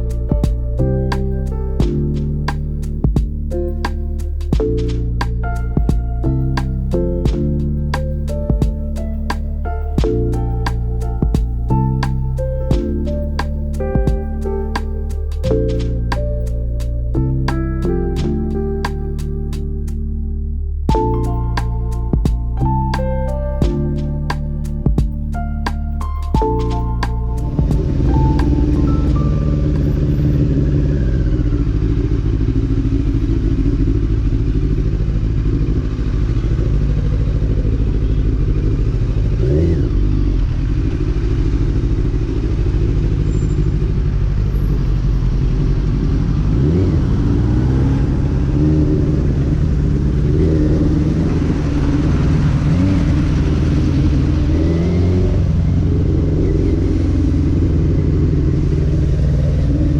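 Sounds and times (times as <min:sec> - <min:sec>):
motorcycle engine accelerating: 0:26.3 - 0:59.9.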